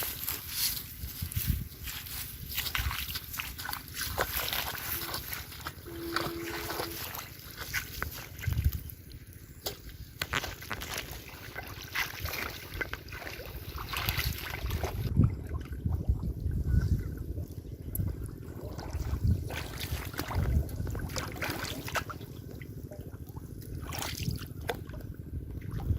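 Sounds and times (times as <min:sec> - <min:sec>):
water sloshing and splashing: 0:00.0 - 0:25.9
low rumble: 0:13.4 - 0:25.9.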